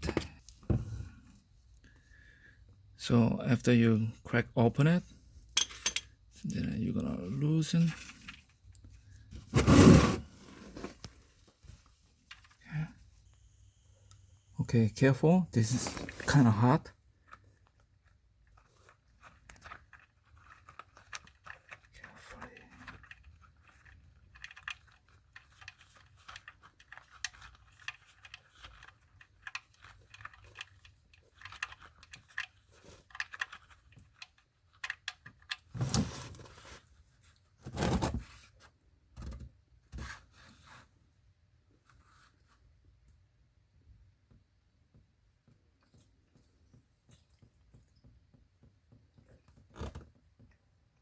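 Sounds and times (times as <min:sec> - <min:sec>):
tools clicking and scraping: 0:05.5 - 0:06.2.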